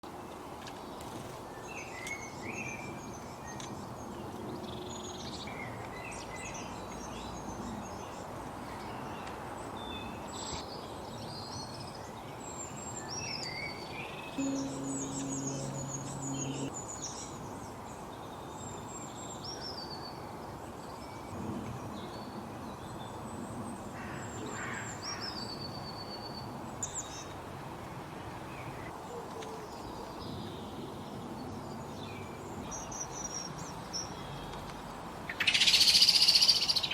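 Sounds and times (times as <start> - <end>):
small birds chirping: 31.8 - 36.9.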